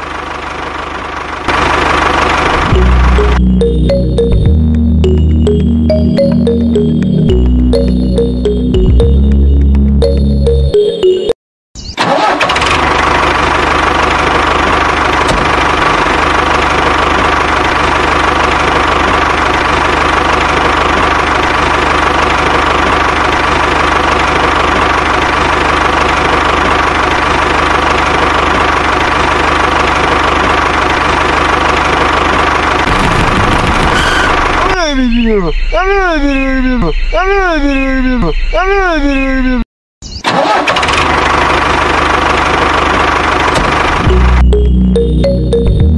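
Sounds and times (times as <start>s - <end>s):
engine starting and idling: 0.0s - 4.3s, 12.0s - 34.9s, 40.2s - 45.6s.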